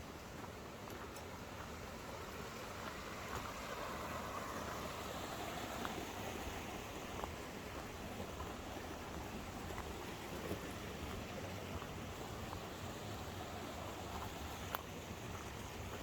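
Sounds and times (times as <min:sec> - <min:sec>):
water rushing over rocks: 0:01.4 - 0:16.0
faint ticks: 0:14.2 - 0:16.0.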